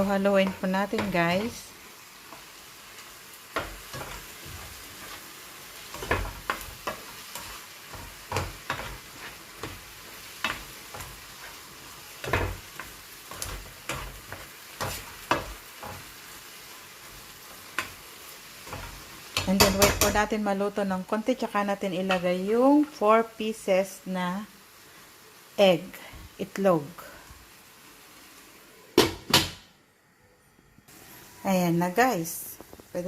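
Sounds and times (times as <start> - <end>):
tomatoes sizzling in a frying pan: 0.0 - 30.1, 30.8 - 33.0
utensil scraping a pan: 3.6 - 16.1.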